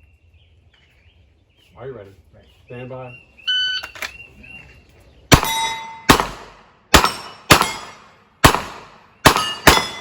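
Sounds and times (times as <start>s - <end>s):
metallic ring of steel targets: 5.3s - 6.3s, 6.9s - 8.1s, 9.3s - 10.0s.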